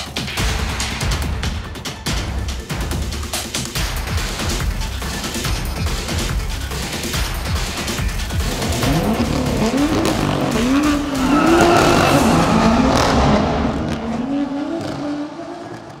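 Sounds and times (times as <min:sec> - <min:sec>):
car engine revving hard: 0:07.8 - 0:16.0
tyres squealing: 0:08.2 - 0:14.3.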